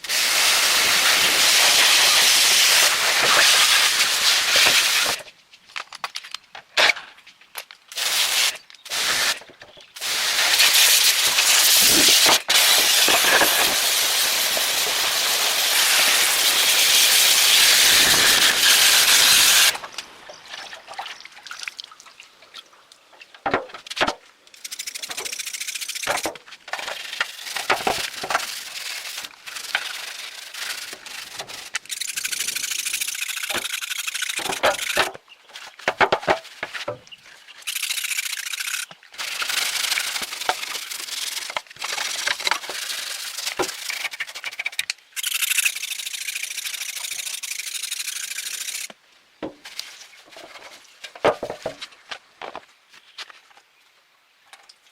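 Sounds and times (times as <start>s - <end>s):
loud hissing tool: 0.0s - 5.2s, 8.0s - 19.8s.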